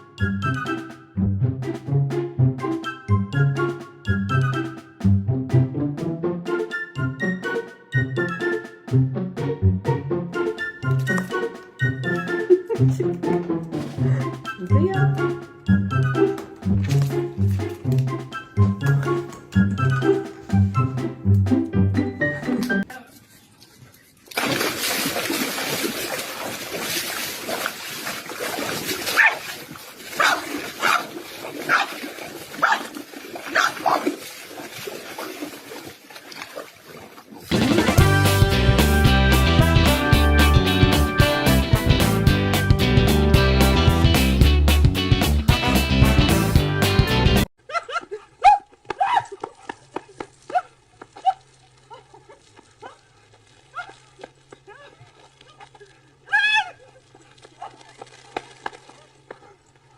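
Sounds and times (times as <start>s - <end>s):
background noise: 9.5s - 38.0s, 47.6s - 59.9s
dog barking high: 29.1s - 29.5s, 30.2s - 32.0s, 32.6s - 32.9s, 33.5s - 34.2s, 47.7s - 49.4s, 53.7s - 54.0s.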